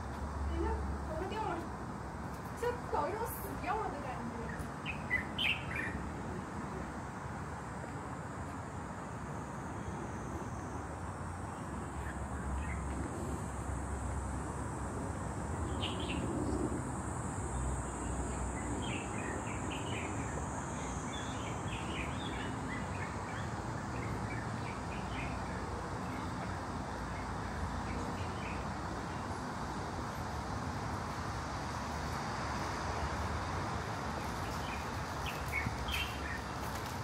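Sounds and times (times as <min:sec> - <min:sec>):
outdoor background hum: 0:00.0 - 0:37.0
small birds chirping: 0:02.4 - 0:06.2, 0:11.4 - 0:13.2, 0:15.6 - 0:16.8, 0:17.5 - 0:29.8, 0:34.1 - 0:37.0.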